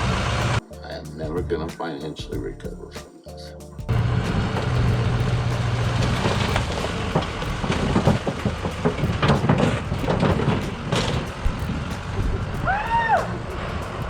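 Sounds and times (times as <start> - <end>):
diesel truck engine running: 0.0 - 0.6, 3.9 - 12.7, 13.3 - 14.0
truck crushing a car: 3.9 - 14.0.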